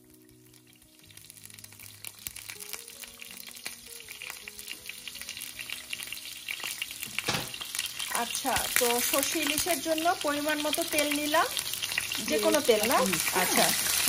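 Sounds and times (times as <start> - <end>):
onions sizzling in hot oil: 0.0 - 14.0
soft background music: 0.0 - 14.0.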